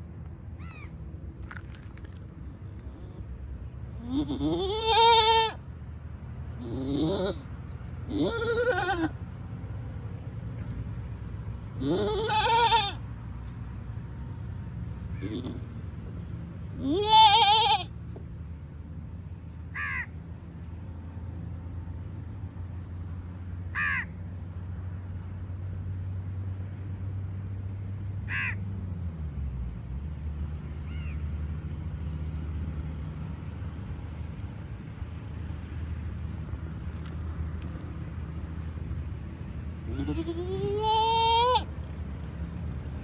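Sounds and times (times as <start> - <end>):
crow cawing: 0.6 - 0.9, 19.8 - 20.1, 23.8 - 24.1, 28.3 - 28.6
goat bleating: 4.0 - 5.6, 6.6 - 7.5, 8.1 - 9.2, 11.8 - 13.0, 15.2 - 15.9, 16.8 - 18.0, 39.9 - 41.7.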